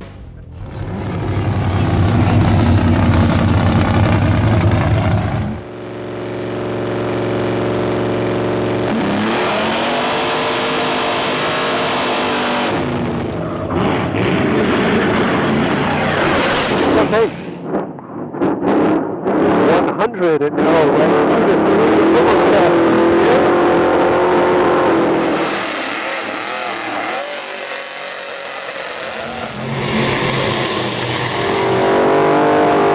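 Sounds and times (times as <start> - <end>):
truck engine running hard: 0.0 - 17.6
road noise: 0.0 - 17.9, 20.8 - 32.9.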